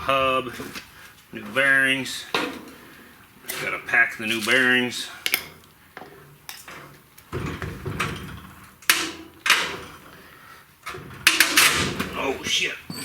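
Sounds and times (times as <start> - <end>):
tools knocking and clattering: 2.3 - 2.8, 5.2 - 10.2, 10.8 - 13.0.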